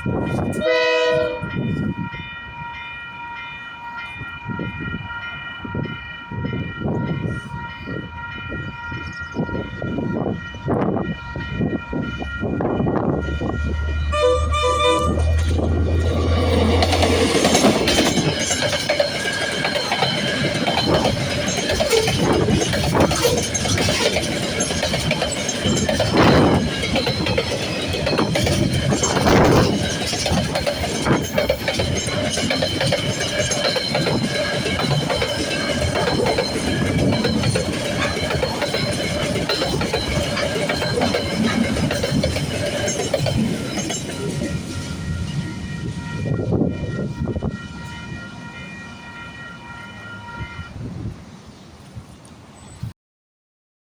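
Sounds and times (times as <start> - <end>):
crossing bell ringing: 0.0 - 51.6
train wheels clattering over rails: 14.7 - 47.3.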